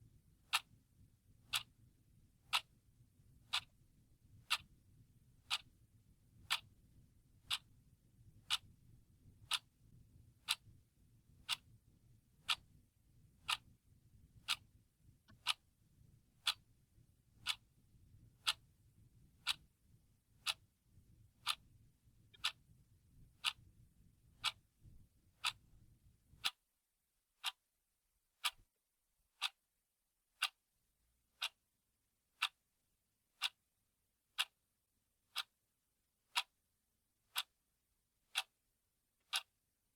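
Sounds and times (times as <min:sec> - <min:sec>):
clock ticking: 0:00.4 - 0:00.8, 0:01.4 - 0:01.8, 0:02.4 - 0:02.8, 0:03.4 - 0:03.8, 0:04.4 - 0:04.7, 0:05.4 - 0:05.7, 0:06.4 - 0:06.8, 0:07.4 - 0:07.7, 0:08.4 - 0:08.8, 0:09.4 - 0:09.8, 0:10.4 - 0:11.8, 0:12.4 - 0:12.8, 0:13.4 - 0:15.7, 0:16.3 - 0:16.7, 0:17.4 - 0:25.8, 0:28.4 - 0:28.7, 0:29.4 - 0:29.6, 0:30.4 - 0:30.6, 0:31.3 - 0:31.6, 0:32.4 - 0:32.6, 0:33.3 - 0:33.6, 0:34.3 - 0:34.6, 0:35.3 - 0:35.6, 0:36.3 - 0:36.6, 0:37.3 - 0:37.6, 0:38.3 - 0:38.6, 0:39.2 - 0:39.5.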